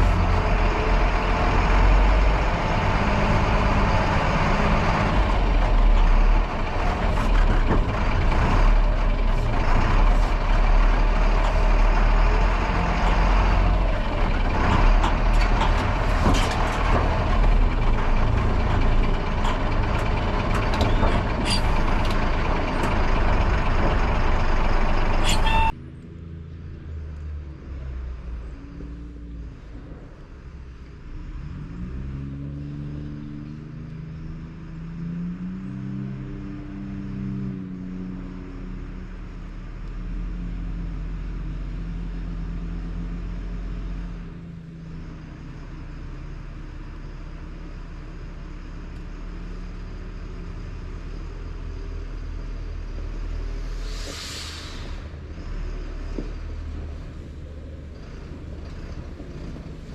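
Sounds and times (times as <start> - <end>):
diesel engine revving: 0.0 - 59.9
short hiss: 53.8 - 55.0.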